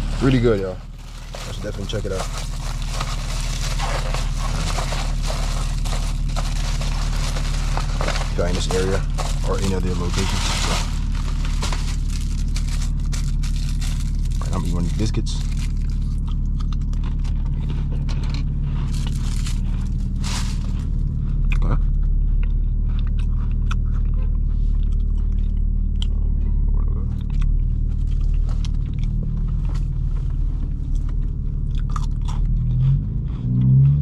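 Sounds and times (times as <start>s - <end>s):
wrapper rustling: 0.0s - 16.2s, 18.8s - 21.0s
chewing and crunching biscuit: 0.0s - 34.0s
low engine drone: 0.0s - 34.0s.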